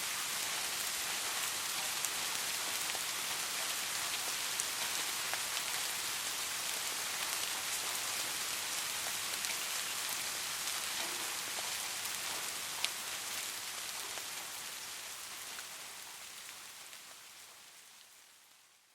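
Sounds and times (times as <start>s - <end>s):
soft rain falling: 0.0s - 18.9s.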